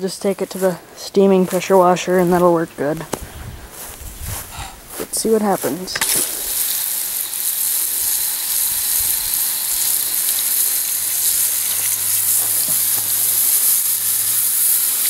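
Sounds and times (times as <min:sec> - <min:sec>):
water spraying hiss: 0:04.4 - 0:15.0.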